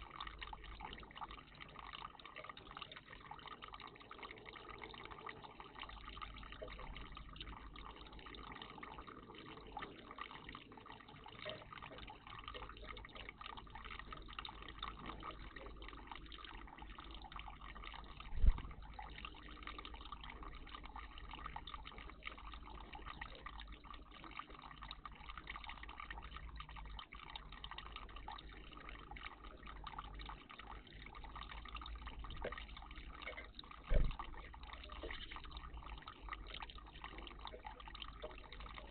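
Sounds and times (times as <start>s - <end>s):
water trickling and dripping: 0.0s - 38.9s
low thump: 33.9s - 34.3s.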